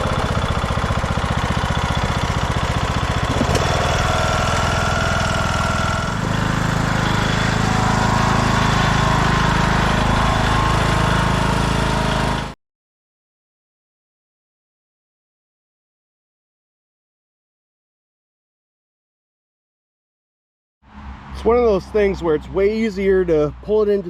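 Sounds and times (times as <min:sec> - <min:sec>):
lawn tractor engine running: 0:00.0 - 0:12.6.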